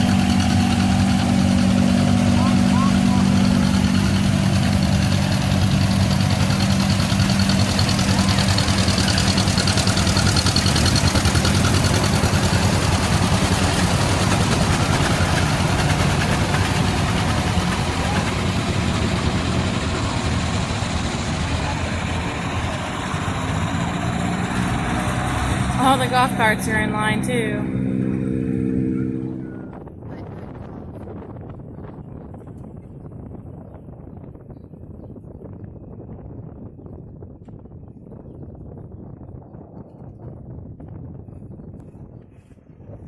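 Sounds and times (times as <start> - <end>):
engine idling: 0.0 - 29.8.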